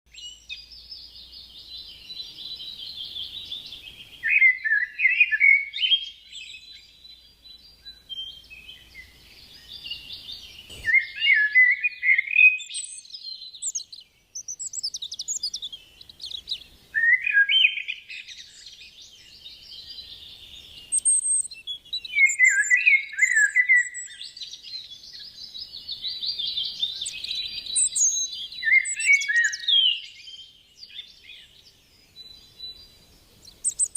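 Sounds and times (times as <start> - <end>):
canary singing trills: 0.1 - 33.9.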